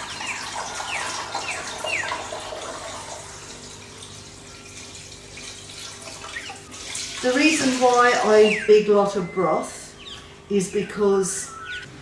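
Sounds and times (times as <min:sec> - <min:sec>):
water running into a pot: 0:00.0 - 0:08.4.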